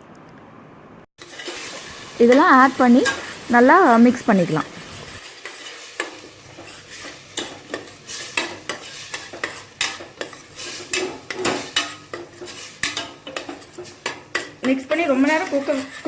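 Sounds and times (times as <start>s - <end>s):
metal ladle scraping a pot: 1.2s - 2.0s, 5.2s - 16.0s
oil sizzling: 1.2s - 16.0s.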